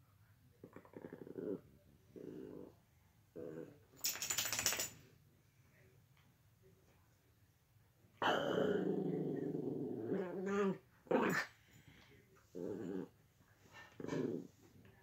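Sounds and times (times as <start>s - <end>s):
dog growling: 0.6s - 3.8s, 8.2s - 11.6s, 12.5s - 14.7s.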